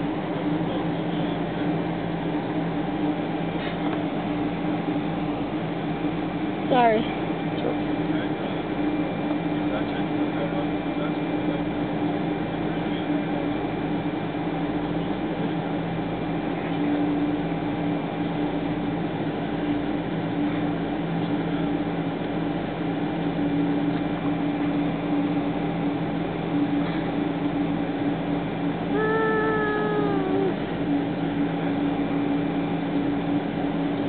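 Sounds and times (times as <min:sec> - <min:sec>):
airliner cabin hum: 0:00.0 - 0:34.0.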